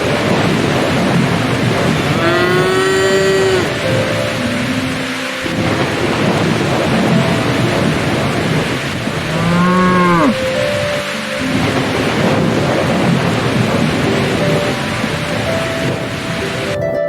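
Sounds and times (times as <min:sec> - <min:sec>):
thunder: 0:00.0 - 0:16.7
steady rain: 0:00.0 - 0:16.8
cow mooing: 0:02.1 - 0:03.8, 0:09.3 - 0:10.4.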